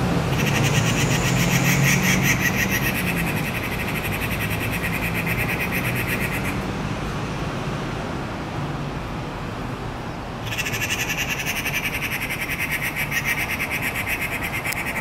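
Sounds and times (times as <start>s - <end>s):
bird chattering call: 0.3s - 6.6s, 10.4s - 15.0s.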